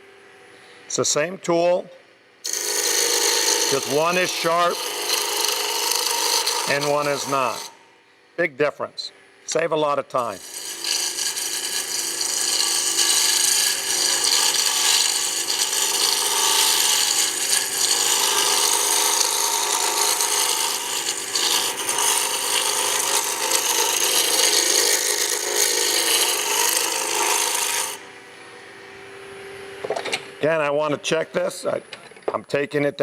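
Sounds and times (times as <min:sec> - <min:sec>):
chisel scraping spinning wood: 0:02.4 - 0:07.8, 0:10.2 - 0:28.0
lathe motor hum: 0:02.5 - 0:07.8, 0:10.2 - 0:29.1.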